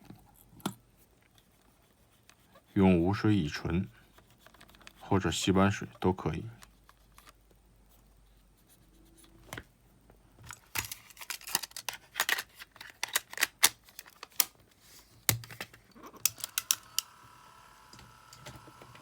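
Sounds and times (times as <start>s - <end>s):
small clicks and scratching: 0.0s - 2.8s, 3.9s - 5.1s, 5.9s - 8.0s, 10.5s - 14.6s, 15.2s - 17.2s.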